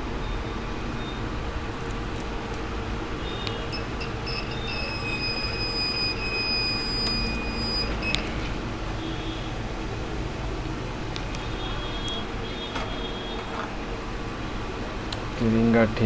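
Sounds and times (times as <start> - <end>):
multimeter continuity beeping: 0.1 - 8.5
click: 3.4 - 3.8, 8.1 - 8.3, 11.1 - 13.0.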